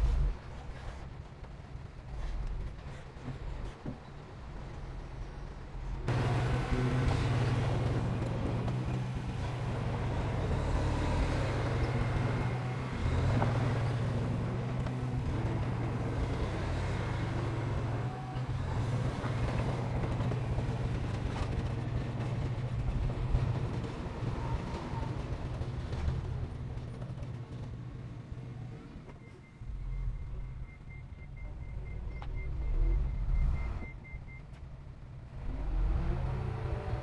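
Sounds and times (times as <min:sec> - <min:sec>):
heavy diesel engine droning: 0:06.1 - 0:27.0.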